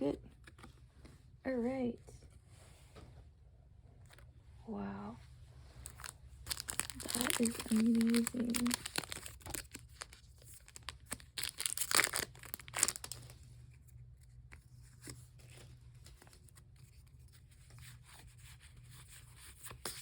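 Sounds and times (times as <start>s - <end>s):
foil wrapper tearing and crinkling: 5.8s - 13.4s.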